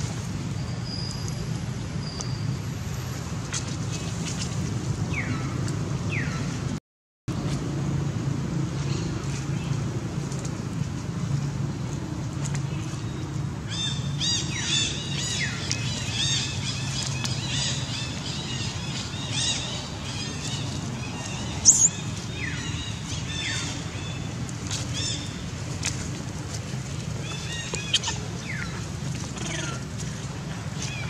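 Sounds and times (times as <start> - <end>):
small birds chirping: 13.7 - 24.3.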